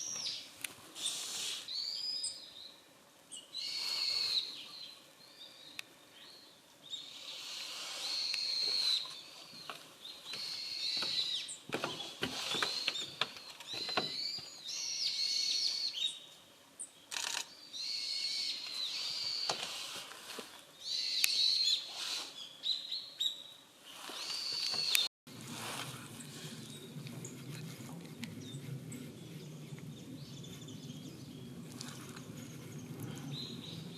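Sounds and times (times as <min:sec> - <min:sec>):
small birds calling: 0:00.0 - 0:19.9, 0:20.8 - 0:25.1, 0:26.2 - 0:33.9
rustles and clicks: 0:08.6 - 0:14.6.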